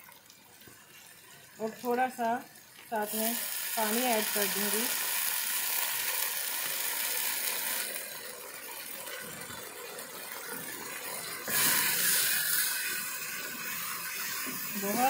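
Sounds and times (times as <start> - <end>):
food sizzling in butter: 1.6 - 9.1, 10.2 - 15.0.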